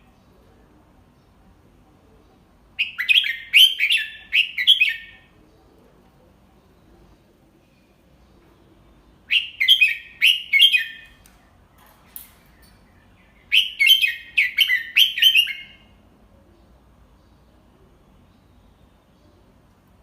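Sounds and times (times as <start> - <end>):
bird singing whistled notes: 2.8 - 5.2, 9.0 - 11.8, 12.4 - 15.9.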